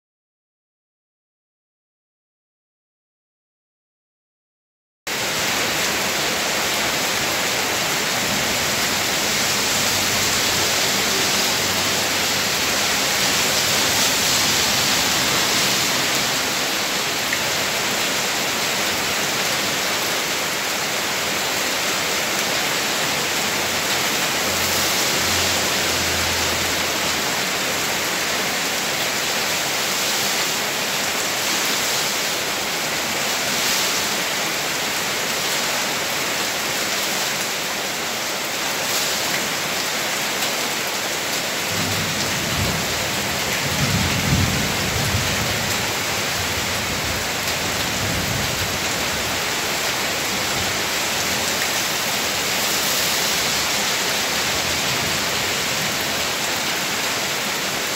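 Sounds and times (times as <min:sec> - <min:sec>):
rain on wet ground: 0:05.1 - 0:57.9.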